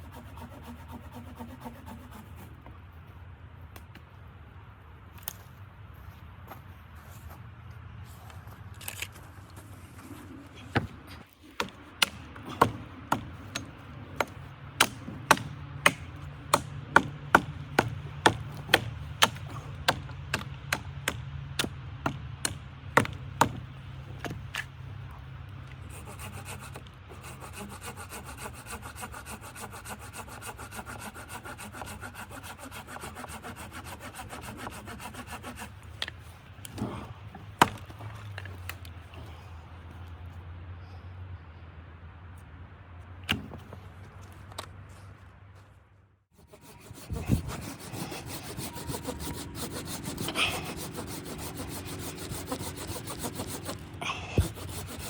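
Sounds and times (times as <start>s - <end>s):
hand saw cutting wood: 0.0s - 2.6s, 11.5s - 21.7s, 25.8s - 37.0s, 46.3s - 55.0s.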